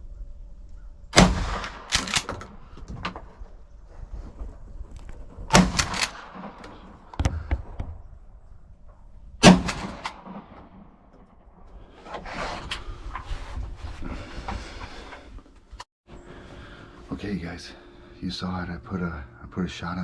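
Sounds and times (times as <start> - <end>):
shotgun shots: 1.1 - 2.6, 5.5 - 7.1, 9.4 - 11.1.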